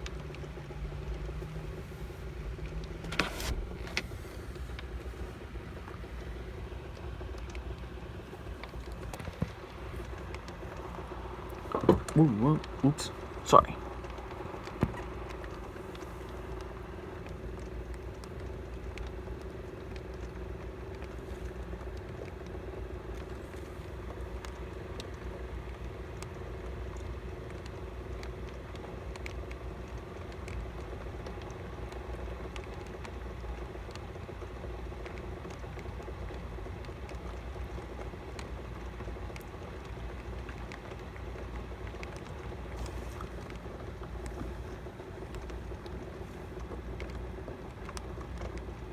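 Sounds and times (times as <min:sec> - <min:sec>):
faint steady hum: 0:00.0 - 0:48.9
raindrops ticking nearby: 0:00.0 - 0:48.9
steady rain: 0:00.0 - 0:48.9.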